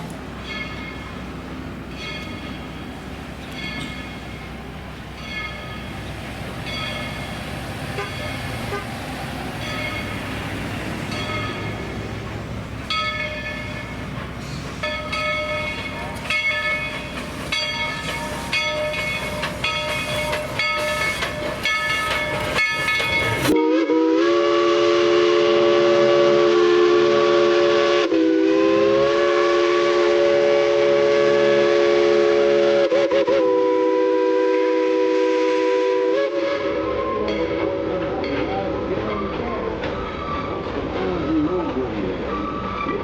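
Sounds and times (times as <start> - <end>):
locomotive bell ringing: 0.4 - 23.6, 37.0 - 40.7
chime steam whistle blast: 17.5 - 37.8.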